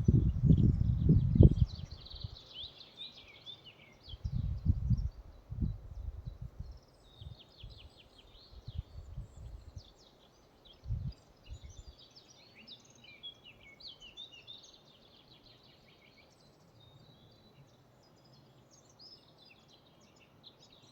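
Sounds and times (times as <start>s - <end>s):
songbirds chirping: 0.0s - 20.9s.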